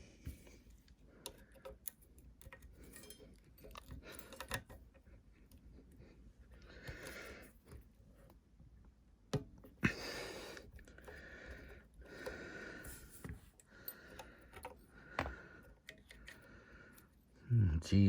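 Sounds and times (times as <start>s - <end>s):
faint handling noise: 10.6s - 17.3s.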